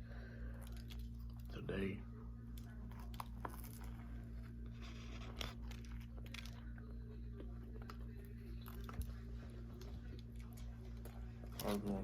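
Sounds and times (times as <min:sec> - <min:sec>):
steady low hum: 0:00.0 - 0:12.0
person chewing and crunching food: 0:00.3 - 0:01.7, 0:02.4 - 0:12.0.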